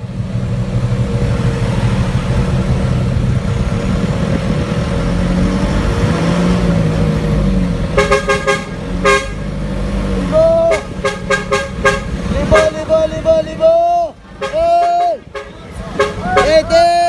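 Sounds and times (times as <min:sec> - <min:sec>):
vehicle engine running: 0:00.0 - 0:17.0
vehicle horn short beeps: 0:08.0 - 0:09.5, 0:10.7 - 0:12.9, 0:14.4 - 0:16.8.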